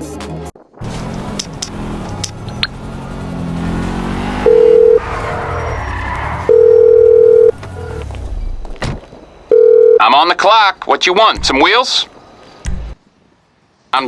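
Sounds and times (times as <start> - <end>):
car engine revving: 0.8 - 8.3
telephone-style ringing tone: 4.4 - 5.0, 6.5 - 7.5, 9.5 - 10.0.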